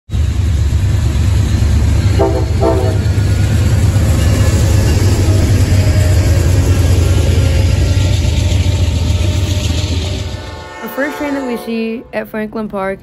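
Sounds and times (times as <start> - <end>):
diesel locomotives rumbling: 0.1 - 13.0
train horn blasts: 2.1 - 3.4, 8.7 - 12.5.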